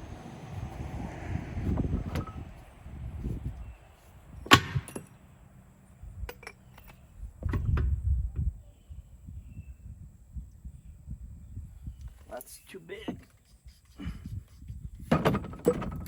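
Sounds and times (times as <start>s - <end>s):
low rumbling handling noise: 0.0s - 8.6s.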